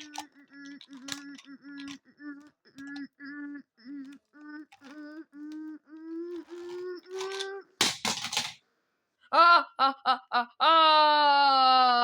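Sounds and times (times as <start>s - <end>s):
person humming short notes: 1.0s - 7.7s.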